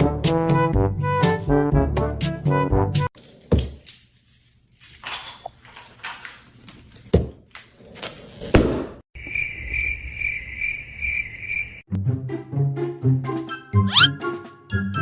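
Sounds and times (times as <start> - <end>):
music: 0.0 - 3.1, 11.9 - 15.0.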